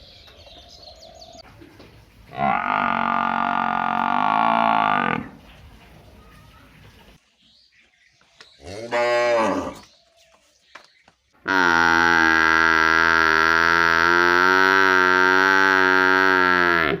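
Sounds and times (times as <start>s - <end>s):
cow mooing: 2.3s - 5.4s, 8.7s - 9.8s, 11.4s - 17.0s.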